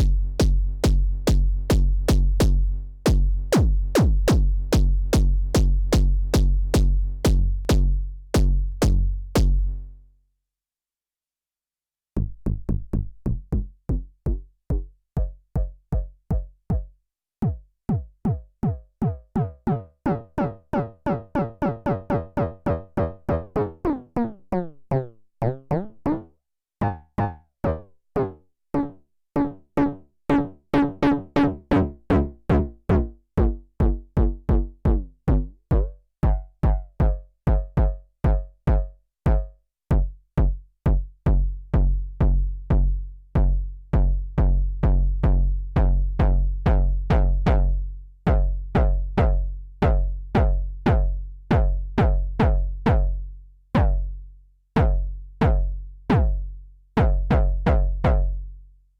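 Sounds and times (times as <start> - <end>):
drum machine kick pattern: 0.0 - 9.8, 13.3 - 19.6, 32.5 - 53.2, 53.8 - 54.1, 54.8 - 56.4, 57.0 - 58.4.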